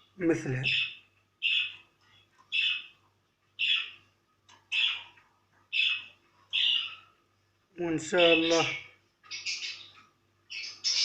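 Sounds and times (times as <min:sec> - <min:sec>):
budgerigar chirping: 0:00.7 - 0:01.8, 0:02.5 - 0:02.9, 0:03.6 - 0:04.0, 0:04.7 - 0:05.1, 0:05.7 - 0:07.1, 0:08.3 - 0:11.0.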